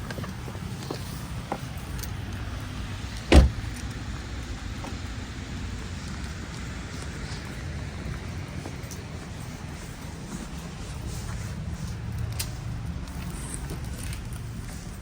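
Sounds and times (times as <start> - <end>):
car road and engine rumble: 0.0 - 15.0
loud thump: 3.3 - 3.7.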